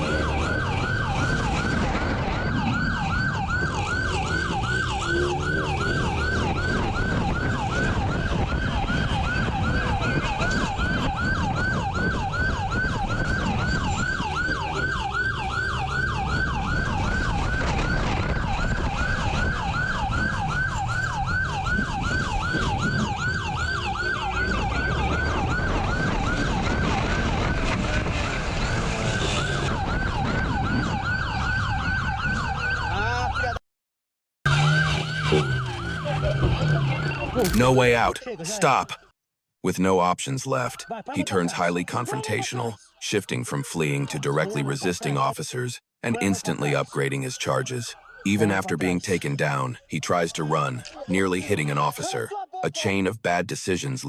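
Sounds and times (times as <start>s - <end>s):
engine and road rumble: 0.0s - 32.7s, 34.5s - 38.8s
police siren yelping: 0.0s - 33.6s, 34.5s - 38.5s, 40.7s - 41.2s, 46.2s - 49.0s.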